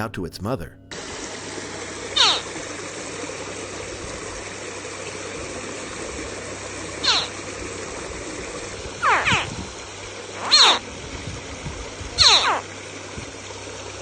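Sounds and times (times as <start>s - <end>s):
baby alligator chirping calls: 2.2s - 2.5s, 7.0s - 7.4s, 9.0s - 9.6s, 10.4s - 10.8s, 12.2s - 12.7s.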